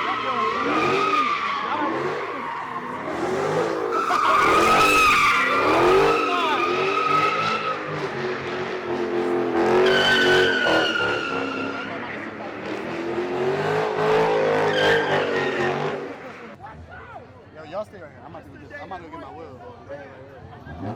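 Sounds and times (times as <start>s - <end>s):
car engine revving hard: 0.0s - 16.4s
car tyres squealing: 0.0s - 16.6s.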